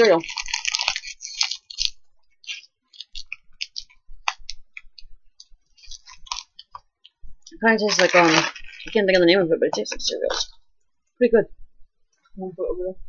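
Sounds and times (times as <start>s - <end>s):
crunchy snack chewing: 0.0s - 9.2s.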